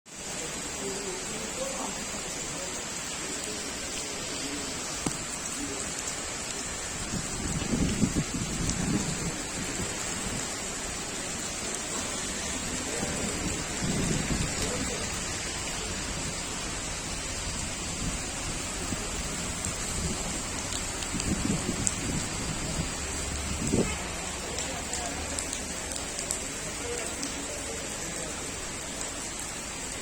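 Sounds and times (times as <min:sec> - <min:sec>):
rain pattering: 0:00.1 - 0:30.0.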